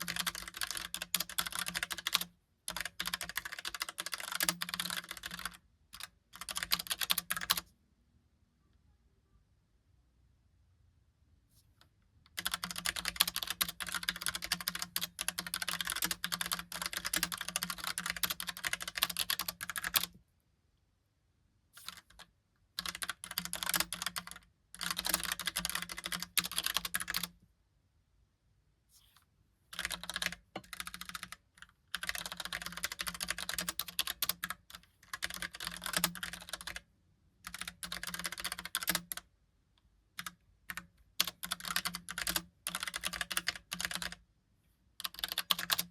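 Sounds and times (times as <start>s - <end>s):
mechanical keyboard typing: 0.0s - 7.7s, 12.3s - 20.2s, 21.8s - 27.4s, 29.8s - 39.3s, 40.2s - 44.2s, 45.0s - 45.9s.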